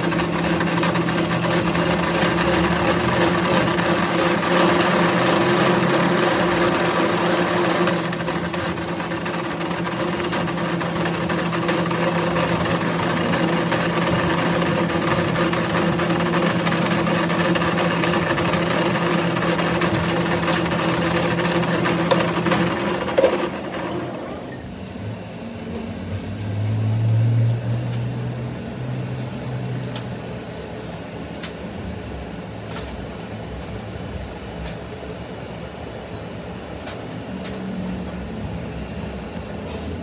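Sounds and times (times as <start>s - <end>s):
machine motor humming and whirring: 0.0s - 24.9s.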